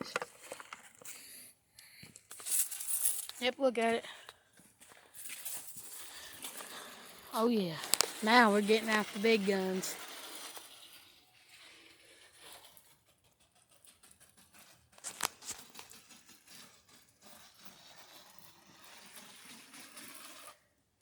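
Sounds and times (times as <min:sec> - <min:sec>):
garden sprayer hissing: 0:05.1 - 0:12.6.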